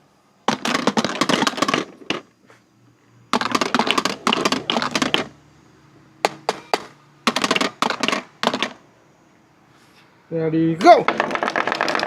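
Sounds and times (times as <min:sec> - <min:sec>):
marbles clicking on a marble run: 0:00.5 - 0:02.2, 0:03.4 - 0:05.3, 0:06.3 - 0:08.8, 0:11.0 - 0:12.0.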